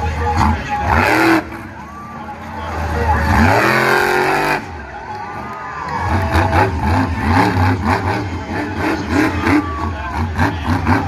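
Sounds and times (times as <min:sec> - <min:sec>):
monster truck engine revving: 0:00.0 - 0:11.0.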